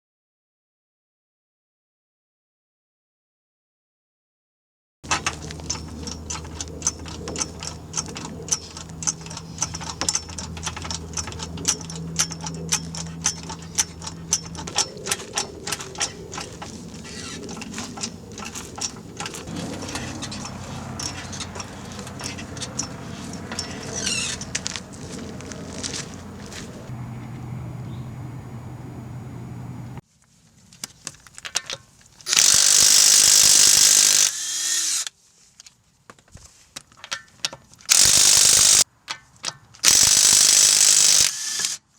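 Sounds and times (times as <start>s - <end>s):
rough scraping: 5.0s - 27.4s
sharp tool clicks: 5.1s - 26.6s, 32.3s - 35.1s, 37.1s - 41.9s
steady low hum: 5.1s - 30.0s.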